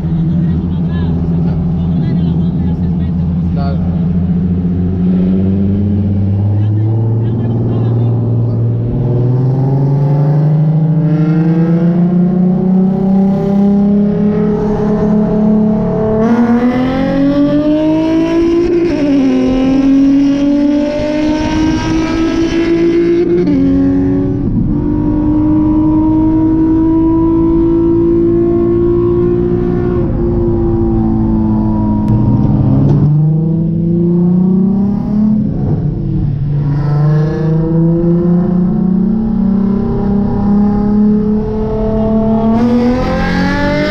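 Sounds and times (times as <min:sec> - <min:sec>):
car engine revving through gears: 0:00.0 - 0:43.9.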